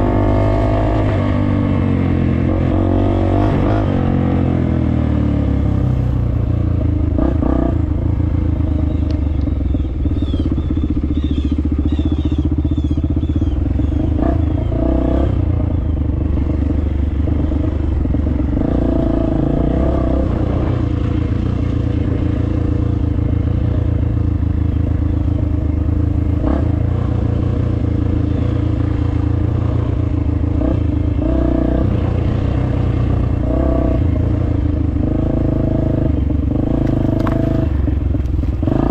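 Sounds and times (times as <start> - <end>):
dirt bike engine revving: 0.0 - 9.0, 9.6 - 38.9.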